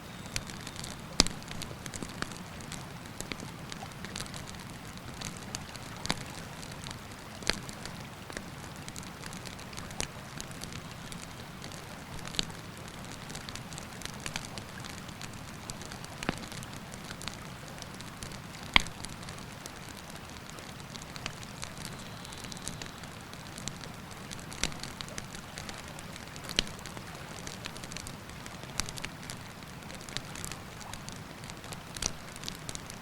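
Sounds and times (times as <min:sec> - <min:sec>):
campfire crackling and popping: 0:00.1 - 0:33.0.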